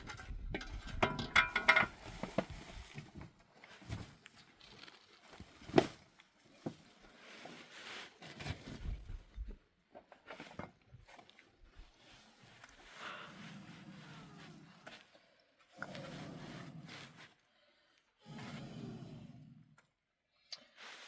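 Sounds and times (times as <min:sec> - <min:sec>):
objects being handled clattering: 0:00.0 - 0:06.0.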